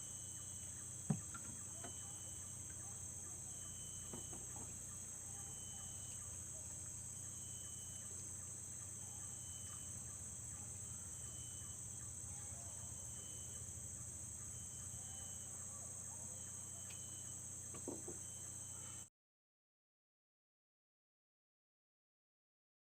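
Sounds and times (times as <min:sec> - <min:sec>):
high-pitched insect chorus: 0:00.0 - 0:19.1
low steady hum: 0:00.0 - 0:19.1
soft knock: 0:01.1 - 0:01.6, 0:17.7 - 0:18.2.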